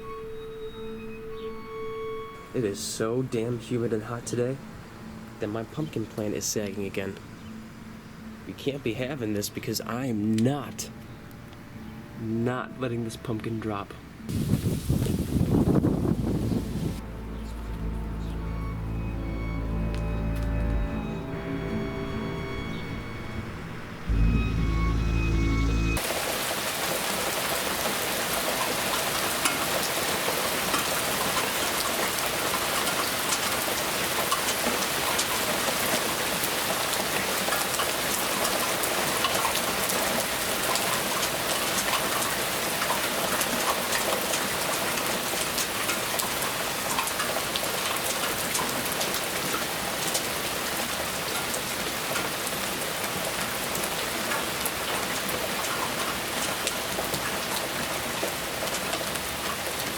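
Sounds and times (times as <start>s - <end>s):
raindrops striking close by: 14.2s - 17.0s, 26.0s - 59.9s
steady rain falling: 14.2s - 22.7s, 25.9s - 59.9s.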